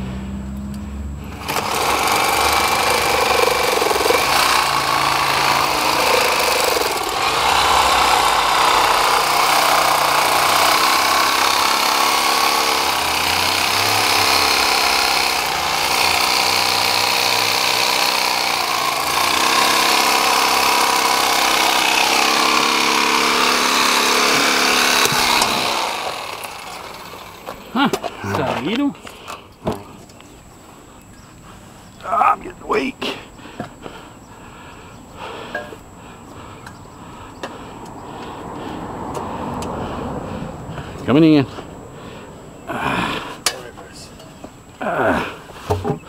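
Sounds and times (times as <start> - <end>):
motorized tool running: 1.3 - 27.6.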